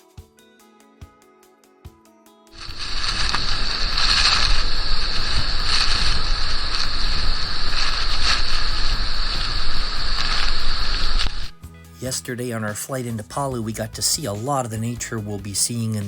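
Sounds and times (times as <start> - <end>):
deep rumble: 2.6 - 11.6
loud steady rushing noise: 2.6 - 11.6.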